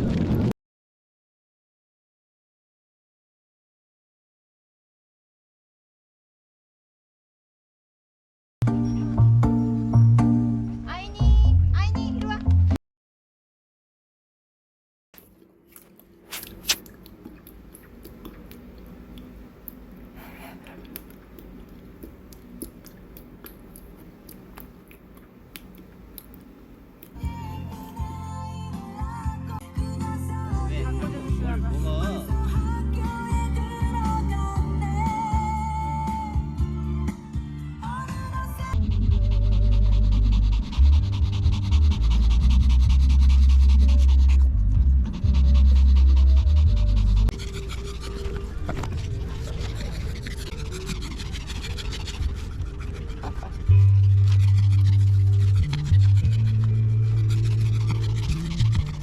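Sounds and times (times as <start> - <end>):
wind rumbling on microphone: 0.0 - 0.5
music: 8.6 - 12.8, 27.2 - 47.3
crunchy chewing: 15.2 - 27.2
dog panting: 38.7 - 59.0.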